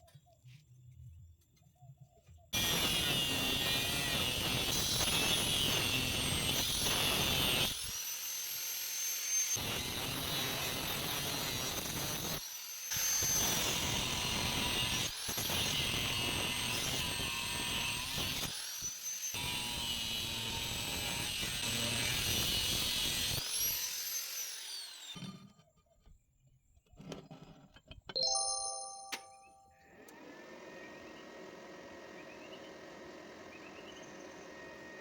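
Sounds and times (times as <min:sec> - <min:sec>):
angle grinder cutting metal: 0:02.6 - 0:25.2.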